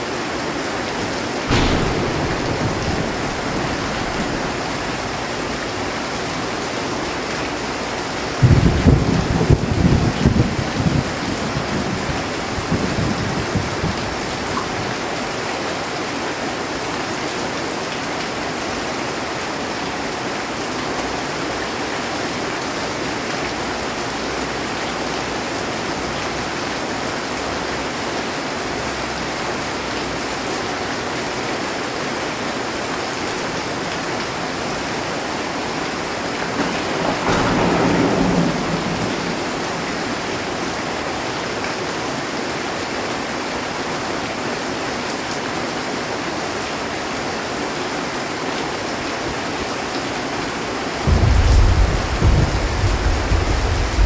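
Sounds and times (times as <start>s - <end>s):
heavy rain on a metal roof: 0.0s - 54.0s
thunder rolling: 1.1s - 14.9s, 33.3s - 42.8s, 51.0s - 54.0s.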